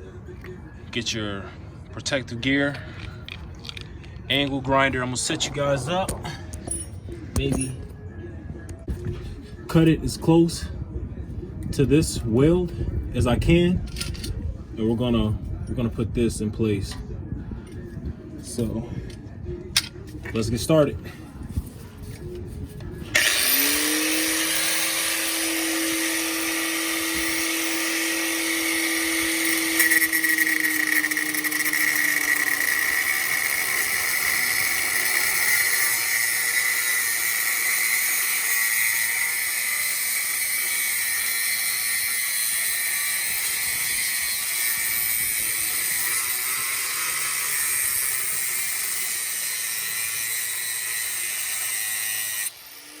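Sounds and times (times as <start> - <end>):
angle grinder cutting steel pipe: 22.2 - 53.0.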